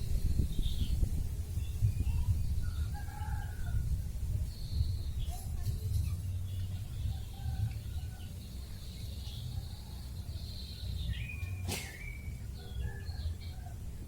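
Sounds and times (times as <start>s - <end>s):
bird calling and chirping: 7.8s - 13.6s.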